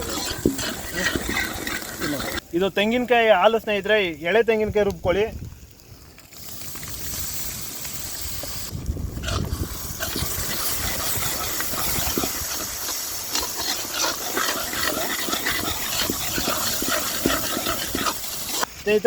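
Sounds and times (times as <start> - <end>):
sizzling in hot oil: 0.0 - 4.0, 4.7 - 19.0
crackling pops: 4.4 - 19.0.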